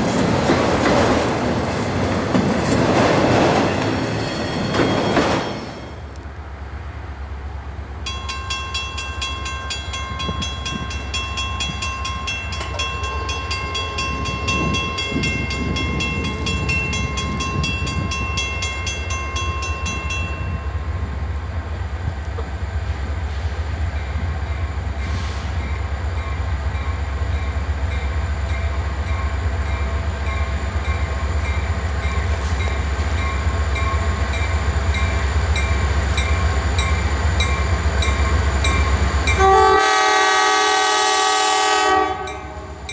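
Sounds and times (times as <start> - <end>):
freight train rumble: 0.0 - 42.9
train bell ringing: 8.0 - 21.2, 25.6 - 39.6, 42.2 - 42.9.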